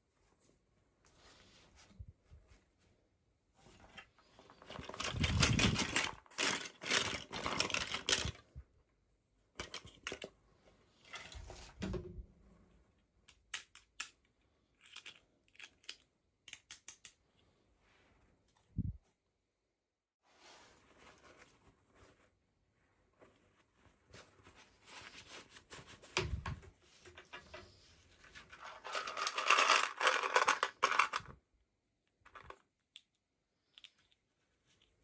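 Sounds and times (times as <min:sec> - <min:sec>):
plastic and cardboard crinkling: 0:03.7 - 0:08.4, 0:23.2 - 0:31.4.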